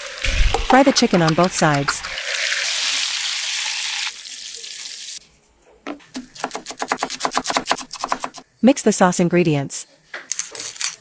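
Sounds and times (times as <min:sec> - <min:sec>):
chicken sizzling in oil: 0:00.0 - 0:05.2.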